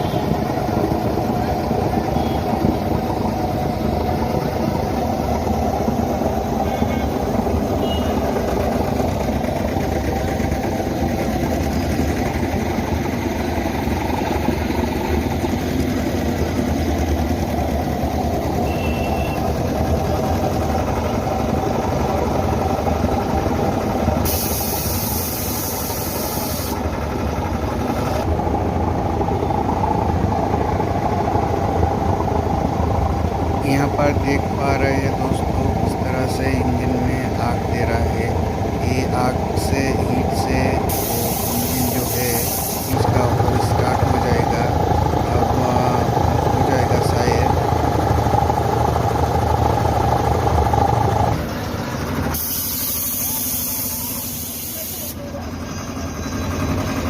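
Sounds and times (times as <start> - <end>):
heavy engine idling: 0.0 - 57.0
hiss: 24.2 - 26.8, 40.9 - 43.0, 52.4 - 55.2.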